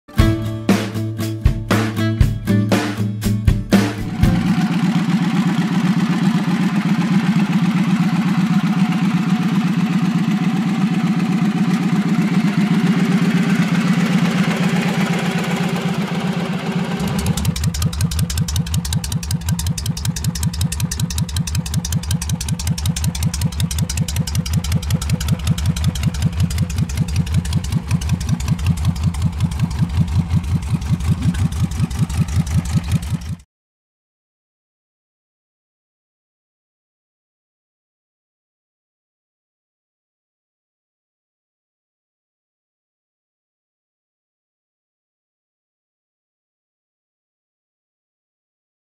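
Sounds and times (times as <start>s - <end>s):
motorcycle exhaust idling: 4.1s - 33.4s.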